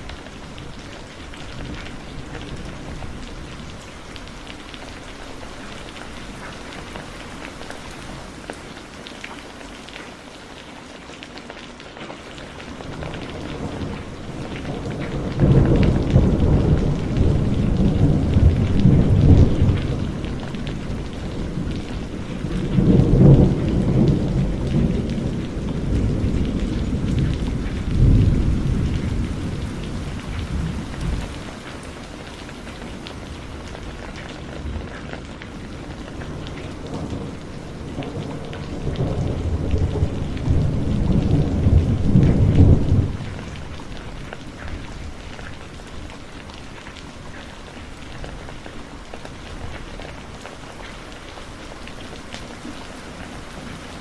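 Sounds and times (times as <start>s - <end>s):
heavy rain: 0.0s - 54.0s
rolling thunder: 12.8s - 31.7s, 33.2s - 46.1s.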